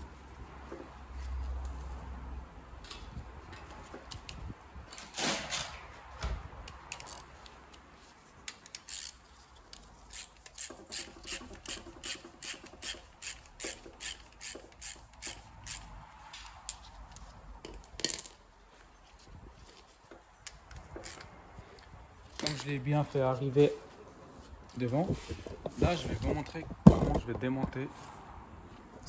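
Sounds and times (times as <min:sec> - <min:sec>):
hand tools rasping and clicking: 0:08.5 - 0:18.4.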